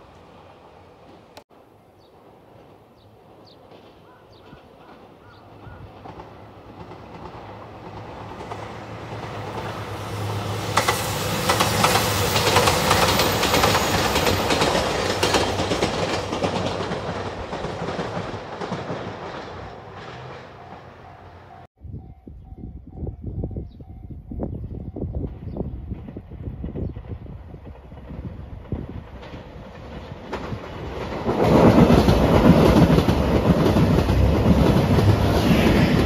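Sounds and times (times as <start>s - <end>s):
train wheels clacking over joints: 3.5s - 9.8s, 10.7s - 21.6s
diesel train engine hum: 4.5s - 21.7s.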